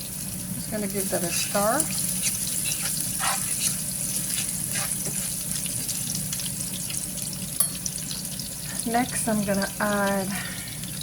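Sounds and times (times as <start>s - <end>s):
garlic sizzling in hot oil: 0.0s - 11.0s
scraping in a frying pan: 1.0s - 7.0s.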